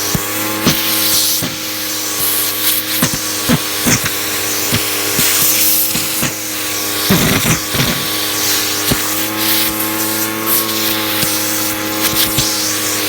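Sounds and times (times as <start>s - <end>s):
sharp clicks and knocks: 0.0s - 6.4s, 7.1s - 8.2s
vacuum cleaner motor running: 0.0s - 13.0s.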